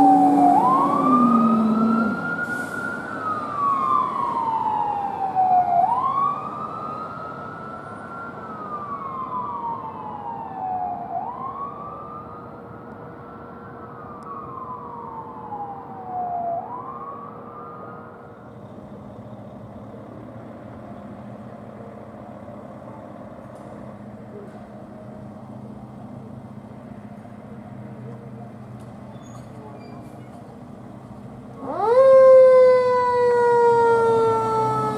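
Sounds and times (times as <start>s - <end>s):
emergency siren wailing: 0.0s - 20.3s, 31.4s - 34.9s
road noise: 0.0s - 34.9s.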